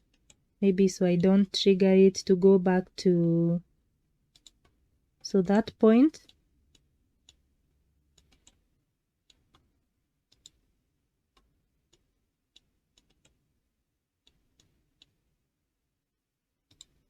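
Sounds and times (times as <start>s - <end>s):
computer mouse clicks: 4.3s - 4.8s, 8.1s - 8.6s, 10.3s - 10.6s, 11.3s - 13.4s, 16.6s - 17.0s.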